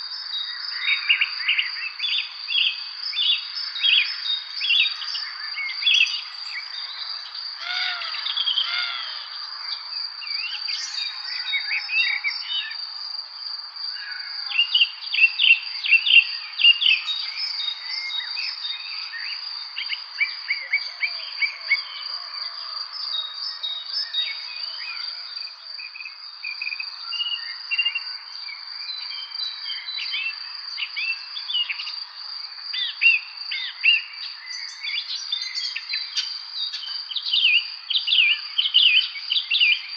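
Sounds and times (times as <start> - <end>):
birds chirping and singing: 2.6 - 12.8.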